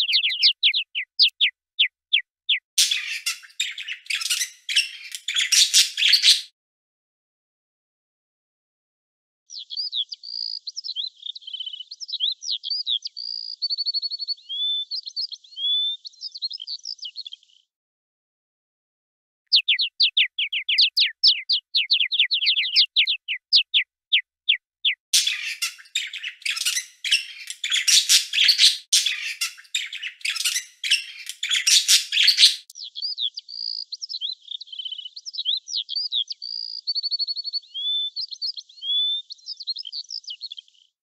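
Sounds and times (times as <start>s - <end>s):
bird trill: 0.0s - 6.5s, 9.5s - 17.4s, 19.5s - 40.7s
harsh bird chatter: 0.0s - 6.5s, 19.5s - 40.6s
songbirds singing: 0.0s - 6.5s, 9.5s - 17.7s, 19.5s - 41.0s.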